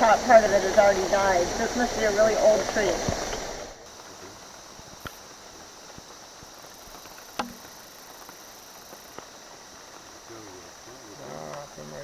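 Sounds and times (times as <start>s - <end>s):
high-pitched insect hum: 0.0s - 12.0s
raindrops tapping on leaves: 0.0s - 12.0s.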